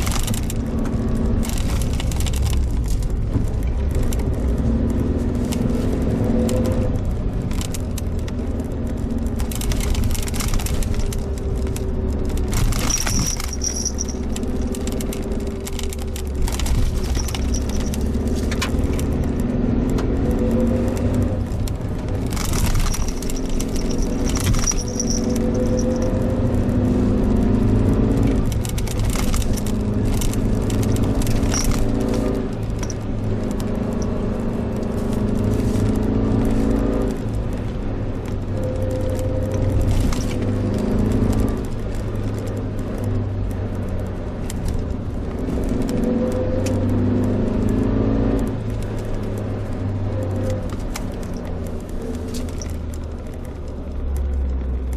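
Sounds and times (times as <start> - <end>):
car engine running: 0.0 - 54.9
light clicking and rattling: 6.4 - 20.1, 20.9 - 27.0, 28.0 - 38.4, 39.0 - 43.8, 48.6 - 54.9.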